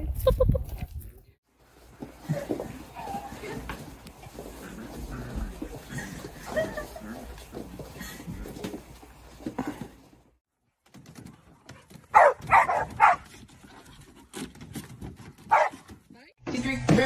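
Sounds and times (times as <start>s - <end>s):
dog barking: 12.1s - 13.2s, 15.5s - 15.8s.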